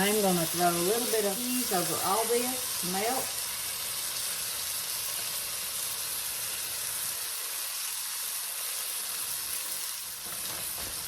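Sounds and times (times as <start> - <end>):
food sizzling in a wok: 0.0 - 11.0.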